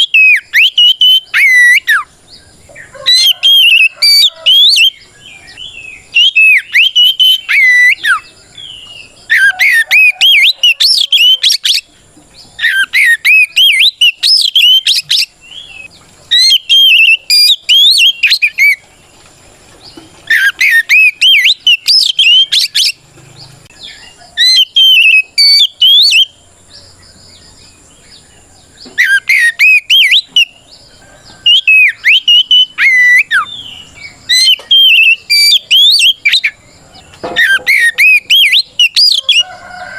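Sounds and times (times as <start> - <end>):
bird singing whistled phrases: 0.0 - 2.1, 3.1 - 11.9, 12.6 - 18.8, 20.3 - 23.0, 23.8 - 26.4, 29.0 - 30.6, 31.4 - 36.6, 37.4 - 39.5.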